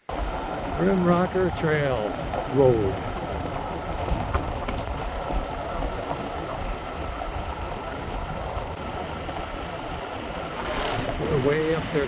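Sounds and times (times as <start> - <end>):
motorbike riding on gravel: 0.1 - 12.0.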